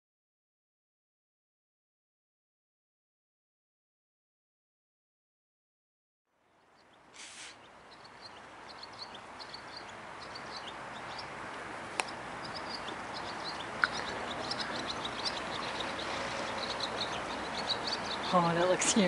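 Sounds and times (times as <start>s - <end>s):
small birds chirping: 6.4s - 19.0s
background hiss: 6.5s - 19.0s.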